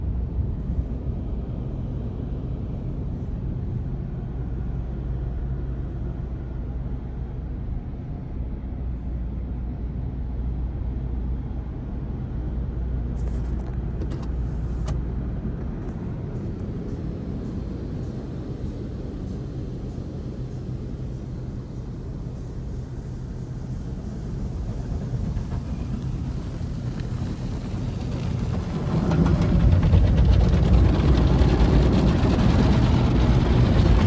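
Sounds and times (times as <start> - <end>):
low hum: 0.0 - 34.0
car-wash machinery rumbling: 13.0 - 34.0.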